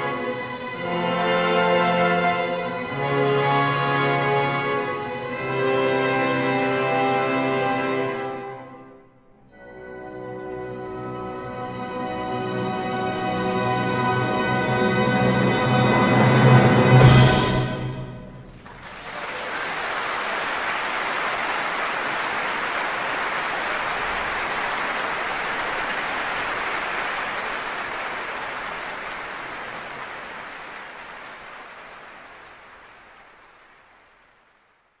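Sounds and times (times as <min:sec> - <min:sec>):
audience applauding: 0:18.5 - 0:34.8.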